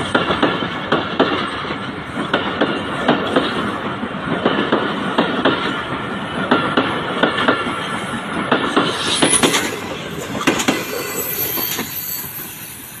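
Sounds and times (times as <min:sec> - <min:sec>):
train wheels clacking over rail joints: 0:00.0 - 0:13.0
high wheel squeal: 0:08.8 - 0:13.0.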